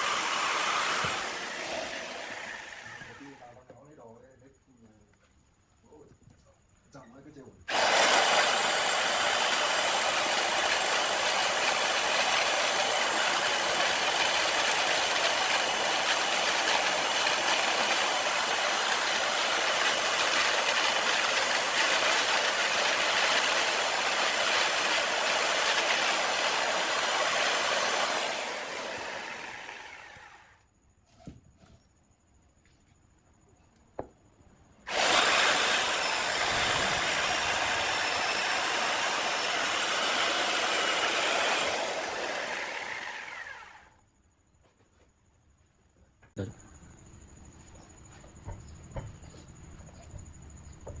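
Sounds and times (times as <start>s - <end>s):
power tool motor whining: 0.0s - 3.4s, 7.7s - 30.5s, 34.9s - 43.9s.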